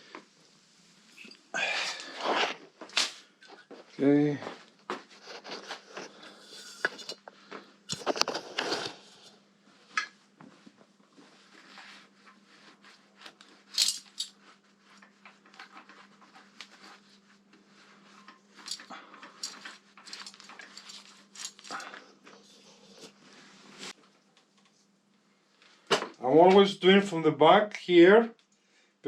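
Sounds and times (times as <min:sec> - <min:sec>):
faint steady hum: 0:00.0 - 0:29.0
metal tools clinking and knocking: 0:06.5 - 0:07.2, 0:13.7 - 0:14.4, 0:18.6 - 0:22.0.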